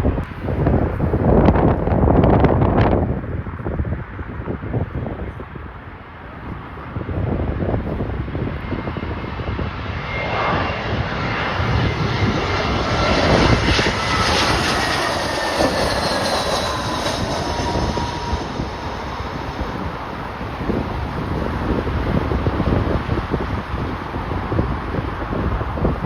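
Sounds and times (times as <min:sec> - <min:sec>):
jet airliner engine rush: 0:00.0 - 0:26.0
wind buffeting microphone: 0:00.0 - 0:26.0
falling whine tones: 0:09.9 - 0:21.1.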